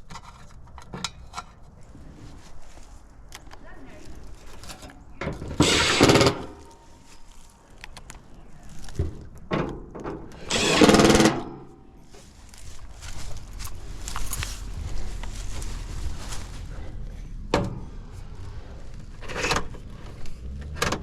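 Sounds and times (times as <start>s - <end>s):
cordless drill running: 5.6s - 6.5s, 10.4s - 11.3s.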